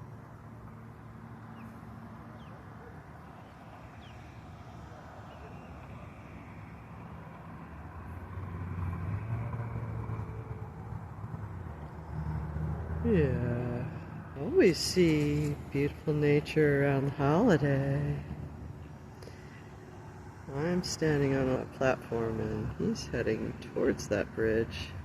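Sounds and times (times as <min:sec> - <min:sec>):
vehicle engine humming: 0:00.0 - 0:25.0.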